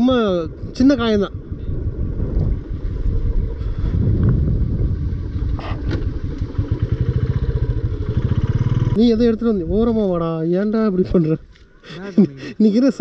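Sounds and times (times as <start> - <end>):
motorcycle engine idling: 2.5 - 9.0.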